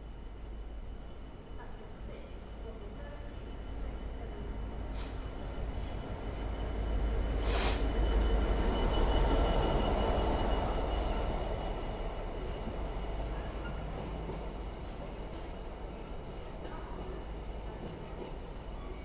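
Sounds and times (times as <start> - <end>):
train passing: 0.0 - 19.0
brief hiss: 7.4 - 7.9.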